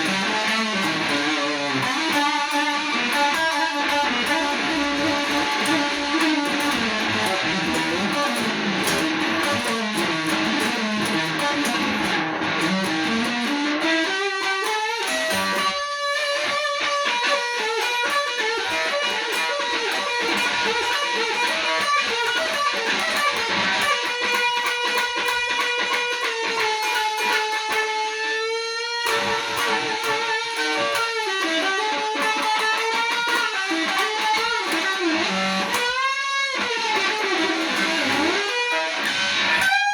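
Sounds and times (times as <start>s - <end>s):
electric guitar blues solo: 0.0s - 39.9s.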